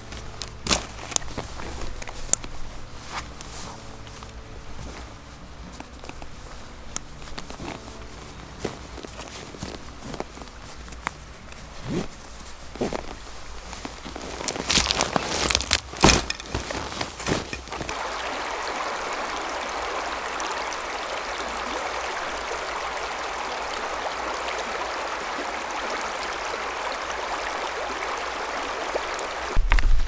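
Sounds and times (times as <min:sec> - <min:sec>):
crunching knocks: 0:00.0 - 0:18.0
water rushing: 0:00.0 - 0:29.7.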